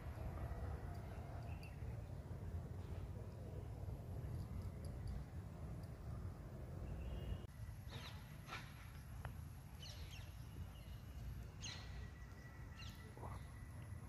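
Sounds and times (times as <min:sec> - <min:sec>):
birds chirping: 0:06.1 - 0:08.4, 0:09.8 - 0:14.0.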